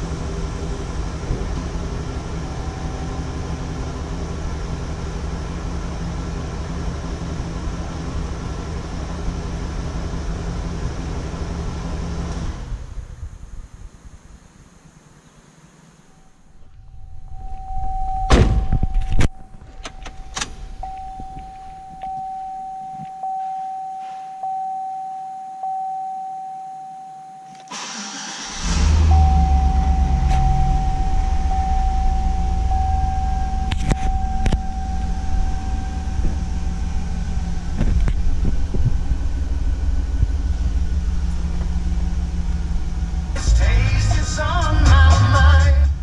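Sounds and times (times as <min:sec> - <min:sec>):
car engine idling: 0:00.0 - 0:15.0, 0:16.1 - 0:22.8, 0:27.7 - 0:46.0
dashboard warning chime dinging: 0:16.9 - 0:27.8, 0:29.0 - 0:37.7
engine starter cranking: 0:27.5 - 0:31.0.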